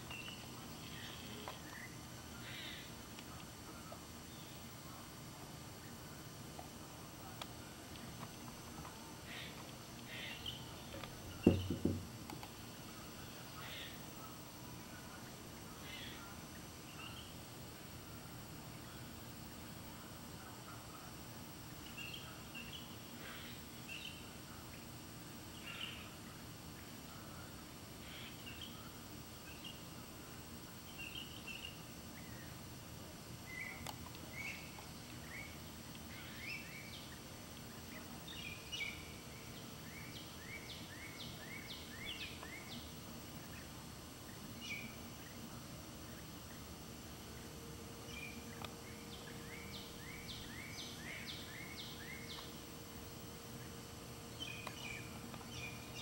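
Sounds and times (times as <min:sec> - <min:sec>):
outdoor background hum: 0:00.0 - 0:56.0
birds chirping: 0:08.0 - 0:14.5, 0:33.4 - 0:56.0.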